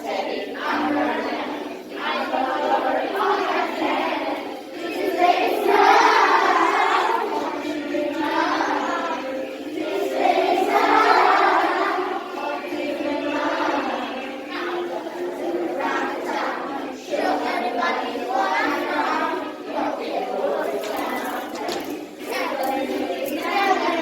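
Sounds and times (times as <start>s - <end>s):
children singing in unison: 0.0s - 24.0s.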